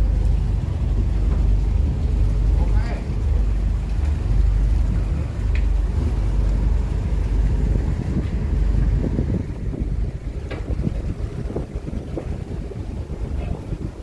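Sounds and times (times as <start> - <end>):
low engine rumble: 0.0 - 14.0
wind buffeting microphone: 0.0 - 14.0.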